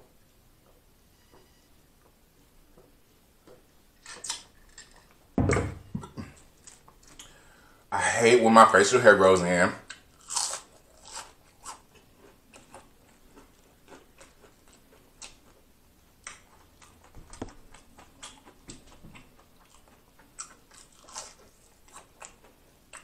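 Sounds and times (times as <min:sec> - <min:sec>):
person chewing crunchy food: 0:06.0 - 0:07.4, 0:09.9 - 0:23.0.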